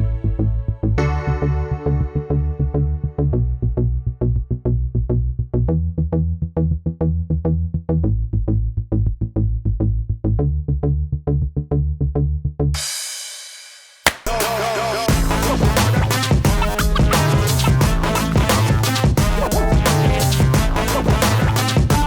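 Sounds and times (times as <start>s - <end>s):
sharp hit: 12.8s - 20.7s
electronic music with drum machine: 14.1s - 22.0s.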